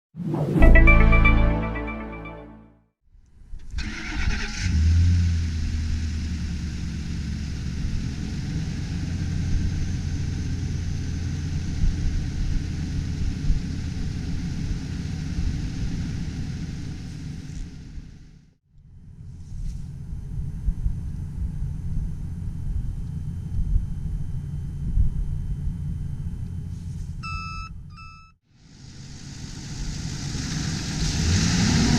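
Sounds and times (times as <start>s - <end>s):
truck engine starting and idling: 3.7s - 9.2s.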